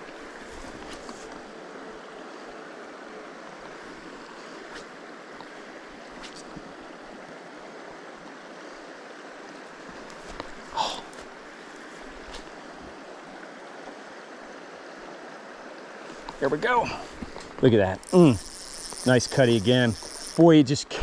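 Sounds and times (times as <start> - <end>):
shallow stream rushing: 0.0 - 21.0
faint ticks: 17.2 - 20.4.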